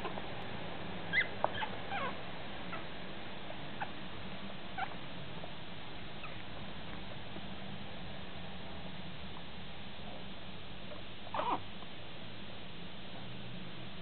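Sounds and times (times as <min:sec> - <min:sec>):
puppy whimpering: 0:01.1 - 0:02.9, 0:04.8 - 0:05.0, 0:11.3 - 0:11.6.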